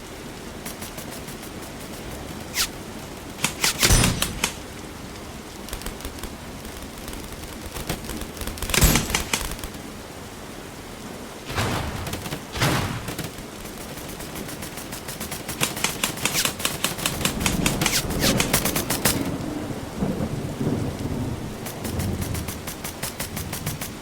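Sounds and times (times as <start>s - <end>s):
airsoft rapid fire: 0.6s - 2.7s, 3.4s - 4.8s, 5.7s - 9.7s, 11.5s - 19.3s, 21.6s - 24.0s
airsoft gun shots: 3.4s - 4.7s, 8.6s - 9.7s, 11.5s - 19.2s.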